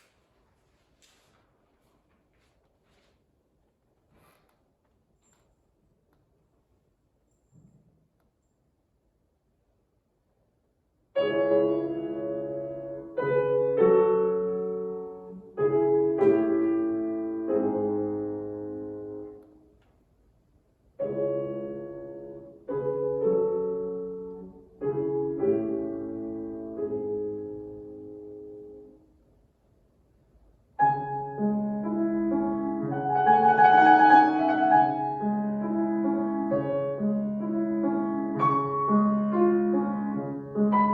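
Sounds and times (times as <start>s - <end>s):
piano playing slow chords: 30.8s - 40.9s.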